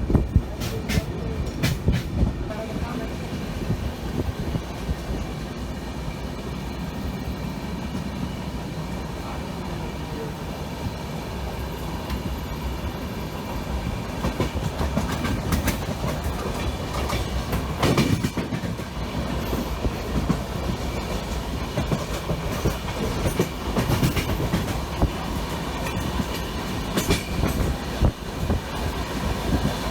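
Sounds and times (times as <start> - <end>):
train coaches rumbling: 0.0 - 29.9
wheels clacking over rail joints: 0.1 - 2.3, 13.9 - 29.9.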